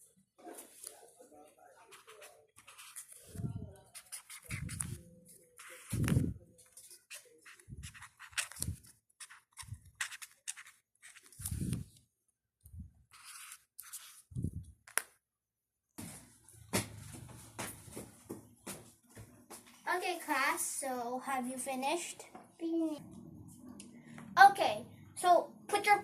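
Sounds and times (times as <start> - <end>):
scratching and rustling strokes: 1.8 - 11.9, 13.1 - 14.6.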